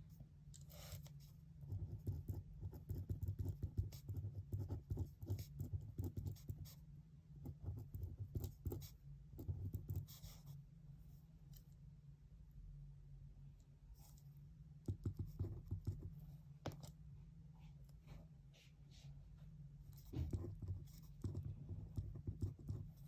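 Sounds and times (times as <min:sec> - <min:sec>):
low room hum: 0:00.0 - 0:23.0
pen scratching on paper: 0:00.7 - 0:06.8, 0:07.4 - 0:10.5, 0:14.9 - 0:16.1, 0:19.9 - 0:23.0.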